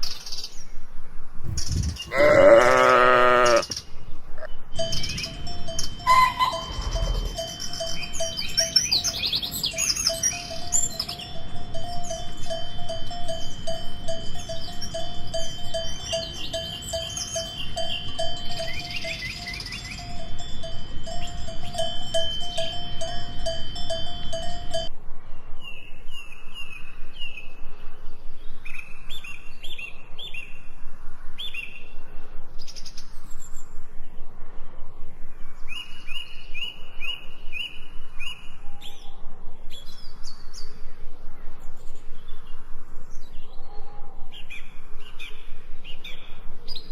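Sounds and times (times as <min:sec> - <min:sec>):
bell-like tone ringing: 0:04.8 - 0:24.9
birds chirping and singing: 0:06.1 - 0:12.6, 0:14.4 - 0:22.8.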